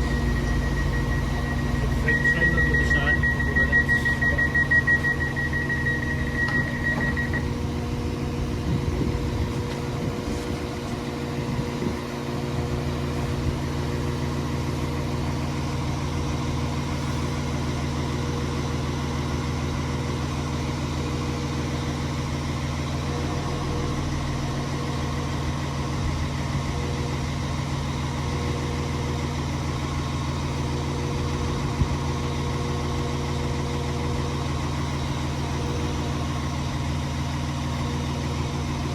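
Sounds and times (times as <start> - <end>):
high steady beep: 0.0 - 7.6
train idling hum: 0.0 - 38.9.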